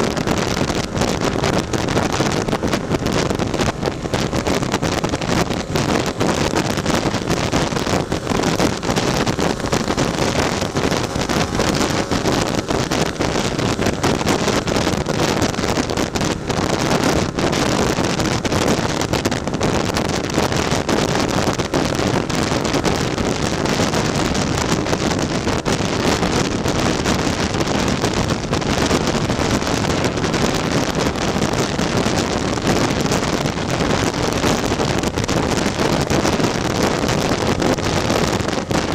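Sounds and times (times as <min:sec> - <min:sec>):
scooter two-stroke engine running: 0:00.0 - 0:24.8
wind rushing over microphone: 0:00.0 - 0:38.9.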